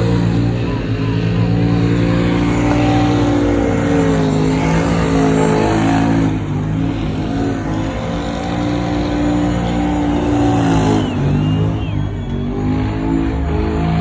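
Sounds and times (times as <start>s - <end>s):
vehicle engine revving: 0.0s - 14.0s.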